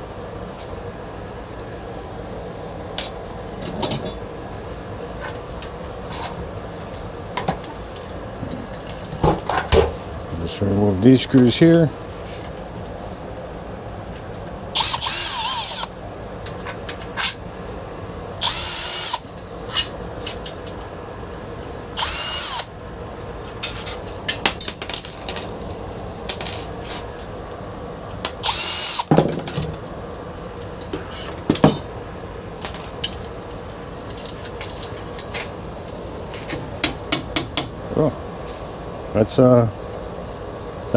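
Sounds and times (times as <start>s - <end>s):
power drill whining: 14.8s - 15.9s, 18.4s - 19.2s, 22.0s - 22.7s, 28.4s - 29.1s
screws and metal parts clicking: 14.8s - 15.9s, 18.4s - 20.0s, 22.0s - 22.7s, 28.4s - 29.1s.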